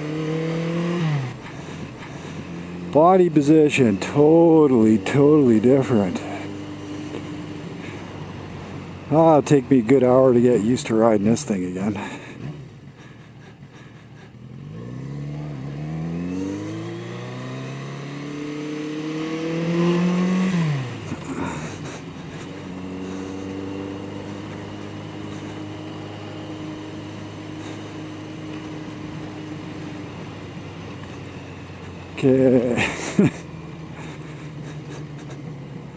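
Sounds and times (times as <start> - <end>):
motorcycle engine accelerating: 0.0 - 35.9.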